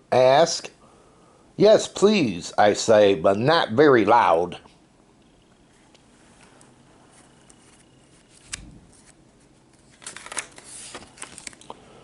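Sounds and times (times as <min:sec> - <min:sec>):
paper rustling: 0:06.2 - 0:11.7
crisp page clicks: 0:07.4 - 0:09.2, 0:09.8 - 0:11.8.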